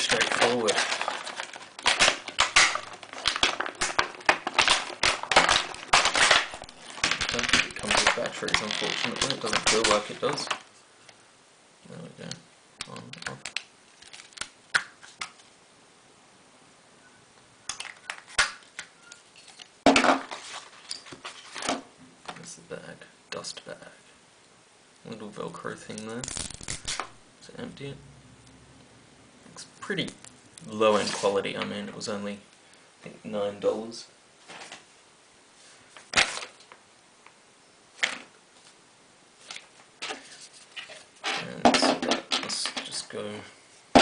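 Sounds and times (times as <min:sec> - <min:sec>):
plastic clicks and rustles: 0:00.0 - 0:10.7.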